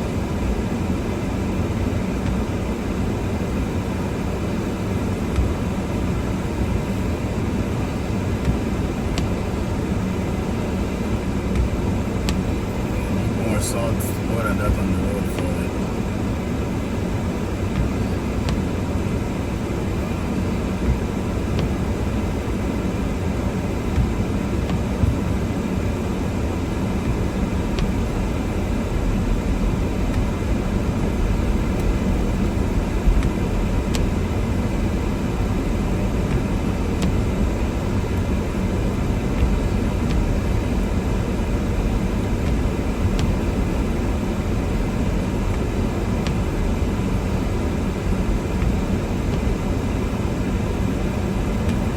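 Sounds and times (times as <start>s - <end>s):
car cabin driving rumble: 0.0s - 51.9s.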